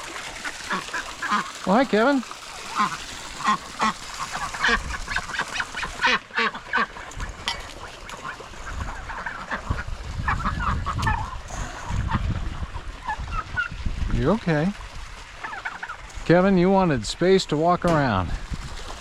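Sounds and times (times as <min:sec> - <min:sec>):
waterfowl calling: 0:00.3 - 0:13.8, 0:15.3 - 0:16.2.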